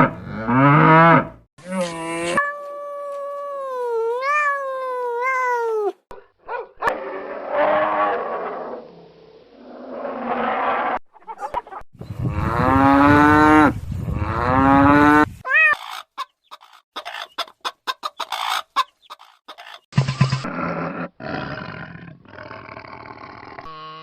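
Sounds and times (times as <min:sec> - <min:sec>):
farm animals calling: 0:15.0 - 0:19.8.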